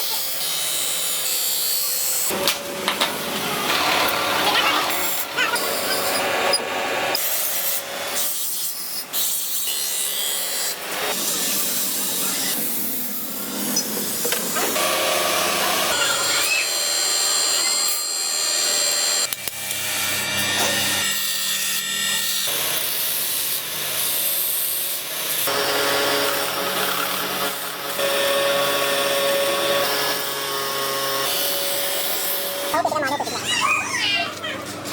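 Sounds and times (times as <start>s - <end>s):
knife blade being sanded: 5.0s - 6.2s.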